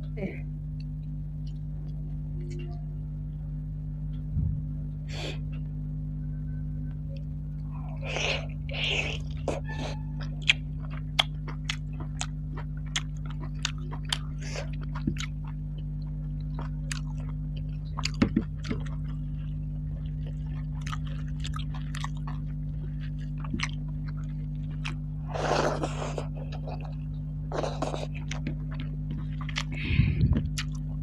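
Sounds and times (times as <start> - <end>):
steady low hum: 0.0 - 31.0
chewing and wet mouth clicks: 10.2 - 19.2, 20.0 - 25.0, 27.6 - 31.0.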